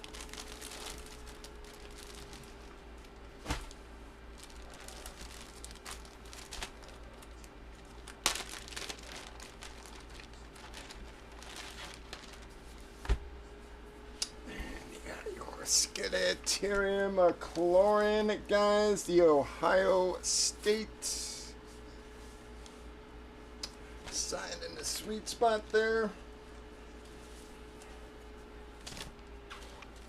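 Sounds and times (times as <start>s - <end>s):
packaging crinkling and tearing: 0.0s - 2.7s, 3.5s - 12.6s
faint steady hum: 0.0s - 30.0s.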